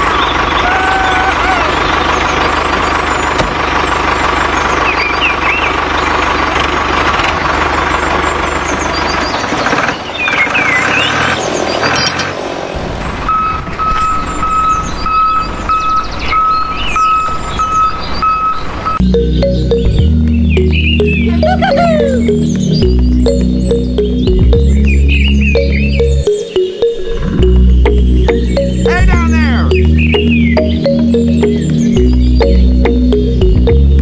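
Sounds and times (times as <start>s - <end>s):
birds chirping: 0.0s - 12.3s, 13.1s - 34.0s
vehicle engine humming: 0.0s - 34.0s
regular beeping: 13.3s - 34.0s.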